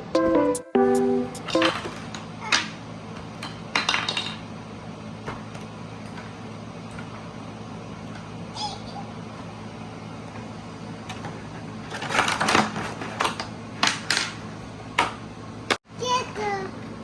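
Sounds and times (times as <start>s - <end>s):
ukulele tune: 0.0s - 2.0s.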